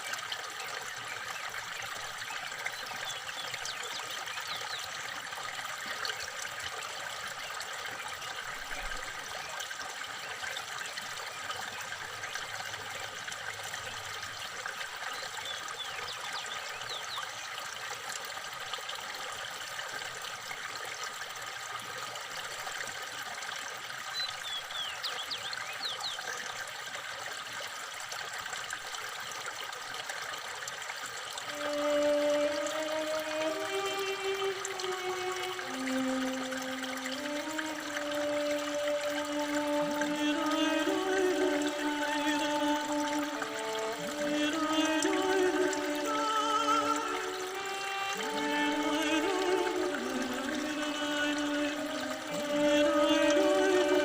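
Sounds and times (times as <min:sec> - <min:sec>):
trickling water: 0:00.0 - 0:54.0.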